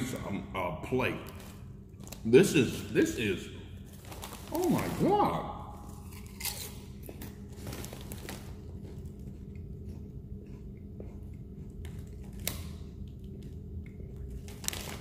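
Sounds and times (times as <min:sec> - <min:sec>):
low room hum: 0:00.0 - 0:15.0
chewing potato chip: 0:05.7 - 0:15.0.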